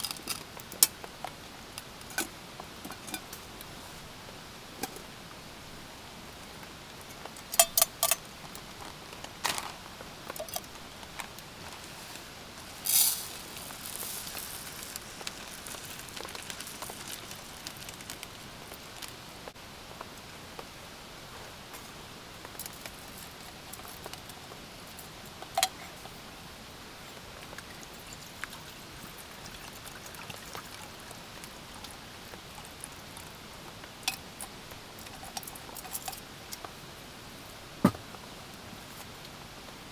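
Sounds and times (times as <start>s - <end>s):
rain pattering: 0.0s - 21.2s
rattle: 12.6s - 18.1s.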